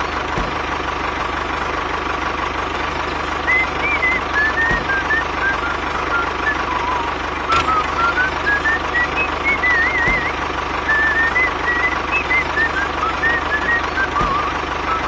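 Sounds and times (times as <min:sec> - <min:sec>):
small engine chugging: 0:00.0 - 0:15.0
low thump: 0:00.3 - 0:00.8, 0:04.4 - 0:05.2, 0:10.0 - 0:10.4, 0:14.2 - 0:14.6
high whistle-like tune: 0:02.8 - 0:15.0
click: 0:07.5 - 0:11.1.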